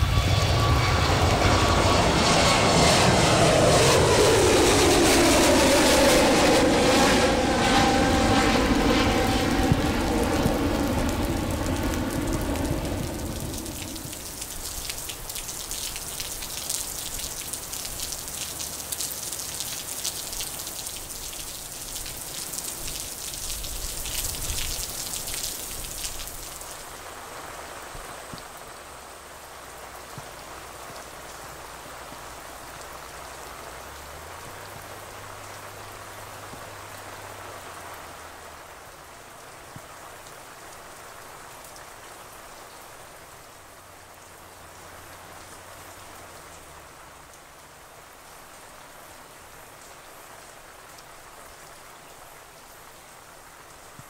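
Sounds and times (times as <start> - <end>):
heavy rain pouring: 0.0 - 52.2.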